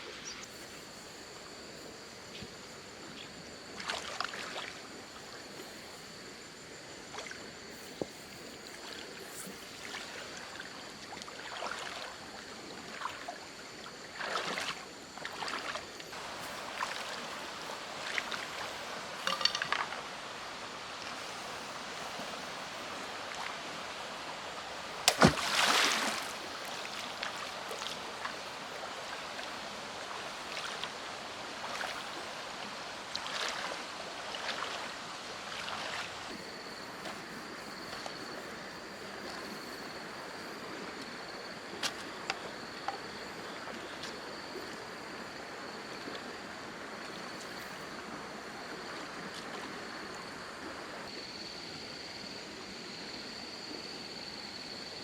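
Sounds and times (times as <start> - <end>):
rain hiss: 16.0 - 41.5
camp gear clicking and rustling: 18.1 - 20.0.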